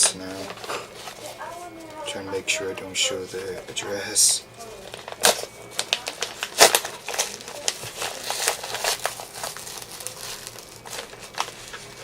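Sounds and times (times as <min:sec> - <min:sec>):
packaging crinkling and tearing: 0:04.8 - 0:12.0
sharp snaps of wrapping: 0:04.9 - 0:12.0.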